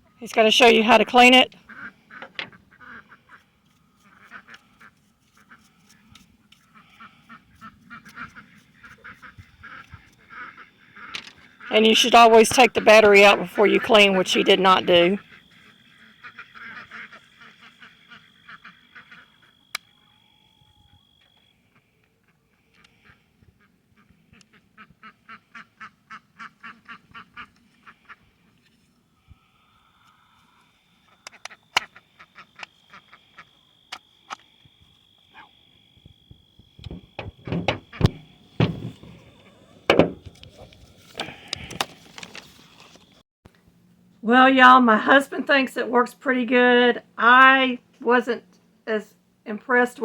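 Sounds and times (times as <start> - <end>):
ducks quacking: 0.8 - 5.6, 6.7 - 19.6, 21.7 - 28.5.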